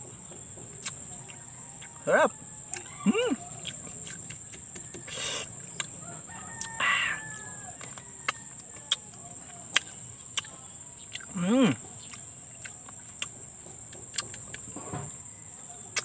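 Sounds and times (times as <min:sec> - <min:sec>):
person chewing with lip smacks: 0:00.8 - 0:02.0, 0:02.7 - 0:03.0, 0:03.6 - 0:06.0, 0:09.7 - 0:11.4, 0:12.0 - 0:14.6
rooster crowing: 0:01.2 - 0:04.0, 0:04.8 - 0:09.4, 0:14.9 - 0:16.0.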